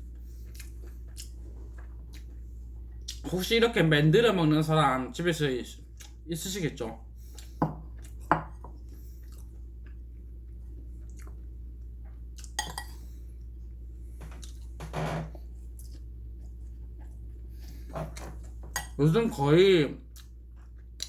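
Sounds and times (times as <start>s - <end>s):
steady low hum: 0.0s - 21.0s
scraping or chewing: 0.2s - 3.2s.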